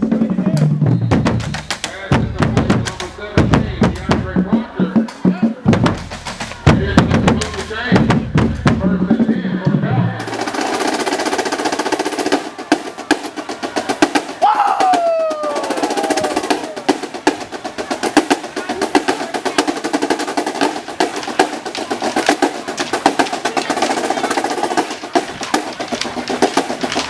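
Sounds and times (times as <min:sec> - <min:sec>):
snare drum cadence: 0:00.6 - 0:08.9, 0:10.2 - 0:27.0.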